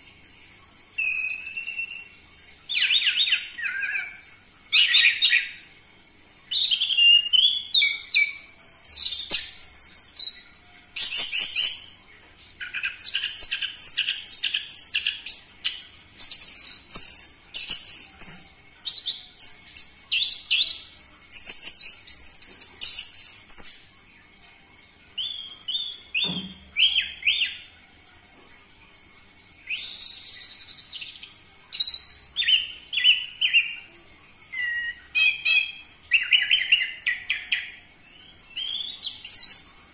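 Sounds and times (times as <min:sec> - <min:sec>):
thrush singing whistled phrases: 0:01.0 - 0:05.6, 0:34.5 - 0:37.7.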